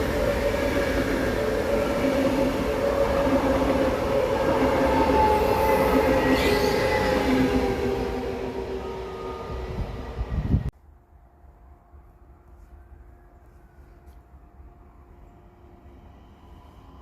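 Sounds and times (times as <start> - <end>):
train rumbling on rails: 0.0 - 10.7.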